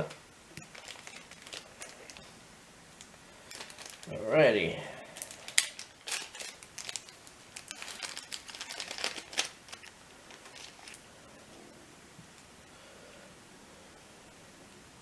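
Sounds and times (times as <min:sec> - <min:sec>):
crinkly rustling: 0:00.6 - 0:02.4, 0:03.3 - 0:11.5.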